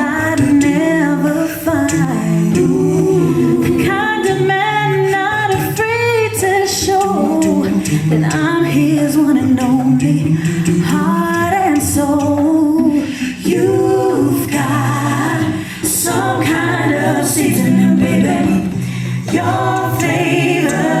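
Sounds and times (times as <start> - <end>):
a cappella group singing: 0.0 - 21.0.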